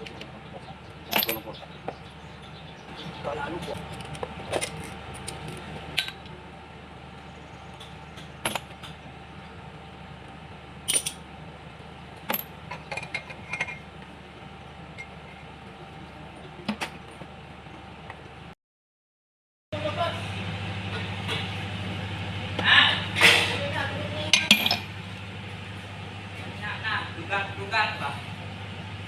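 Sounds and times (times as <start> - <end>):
steady low hum: 0.0 - 18.6, 19.8 - 29.0
metal clinks of tools: 1.1 - 1.6, 10.9 - 11.2, 24.4 - 24.9.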